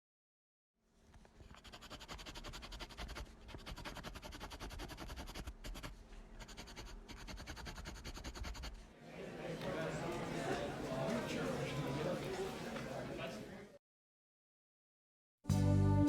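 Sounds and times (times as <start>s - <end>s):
rapid scratching strokes: 1.3s - 8.8s.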